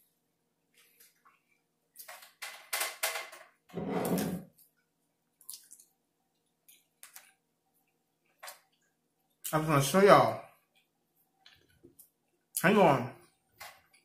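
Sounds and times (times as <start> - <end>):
crisp wet chewing: 4.6 - 9.6.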